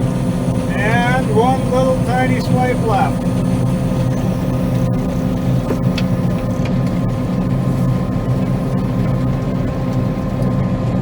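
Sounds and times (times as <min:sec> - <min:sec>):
combine harvester engine drone: 0:00.0 - 0:11.0
machinery whine: 0:00.0 - 0:11.0.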